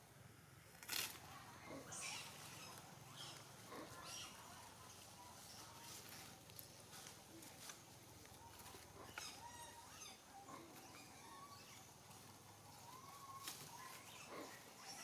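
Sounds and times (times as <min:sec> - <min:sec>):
faint animal chirps: 0:08.5 - 0:12.0.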